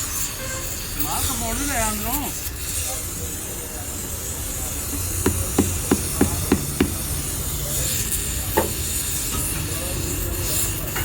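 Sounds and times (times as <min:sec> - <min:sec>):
low workshop hum: 0:00.0 - 0:11.0
sharp knocks: 0:05.2 - 0:07.1.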